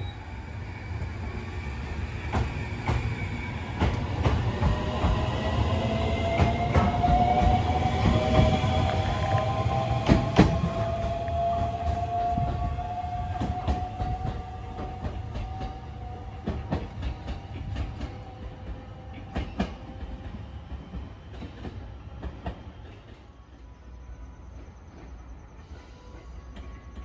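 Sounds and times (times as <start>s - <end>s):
train drive tone rising: 0.0s - 16.9s.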